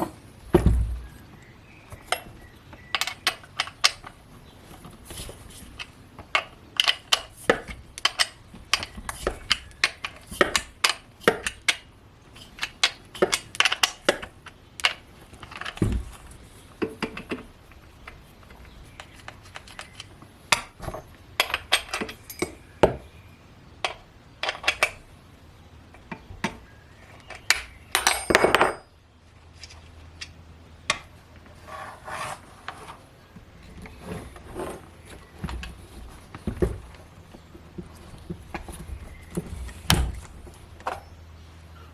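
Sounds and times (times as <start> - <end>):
metal tools clinking and knocking: 19.0 - 22.6, 27.2 - 29.0.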